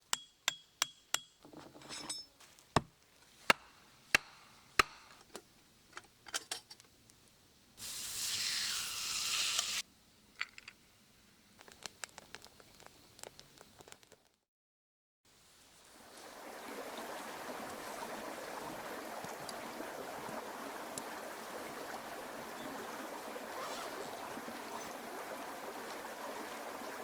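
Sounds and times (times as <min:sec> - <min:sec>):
glass and utensils clinking: 0:01.6 - 0:02.4
short hiss: 0:07.8 - 0:09.8.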